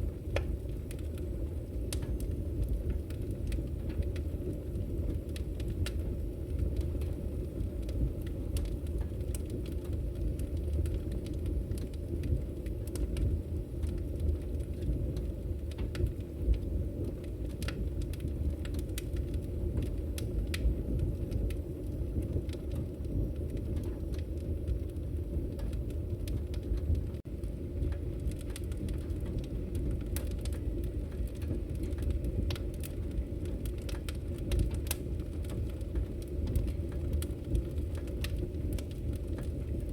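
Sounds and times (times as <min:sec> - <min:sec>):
fire low rumble: 0:00.0 - 0:39.9
logs crackling and popping: 0:00.0 - 0:39.9.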